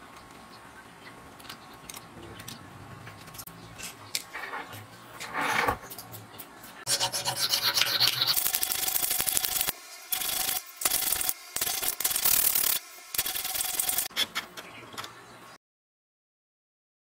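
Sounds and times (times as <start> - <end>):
file rasping on steel: 6.9 - 14.1.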